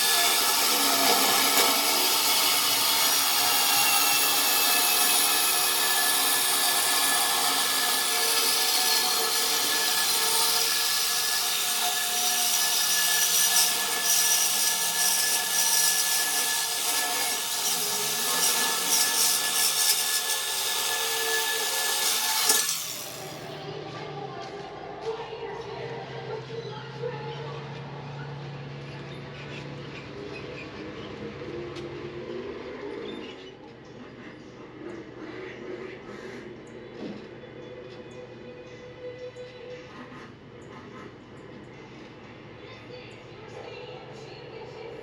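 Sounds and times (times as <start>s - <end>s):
power tool grinding: 0.0s - 23.6s.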